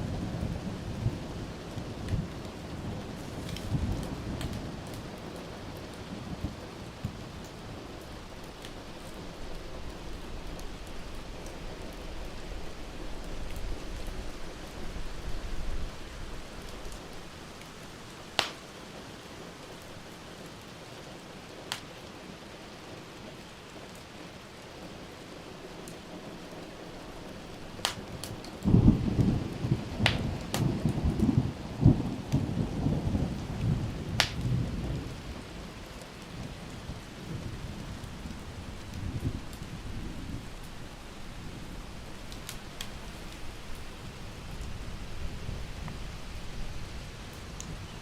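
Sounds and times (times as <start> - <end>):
low thunder rumble: 0.0 - 7.3, 28.6 - 48.0
rain hissing: 0.0 - 48.0
burning wood popping: 2.1 - 5.2, 18.3 - 18.7, 27.4 - 29.3, 30.0 - 31.2, 34.2 - 34.6, 40.4 - 44.0.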